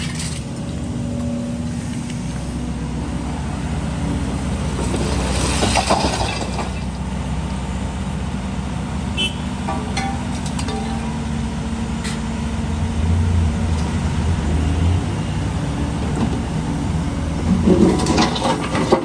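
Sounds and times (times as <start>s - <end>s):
diesel construction machinery running: 0.0s - 19.0s
scraping and clattering: 17.5s - 19.0s.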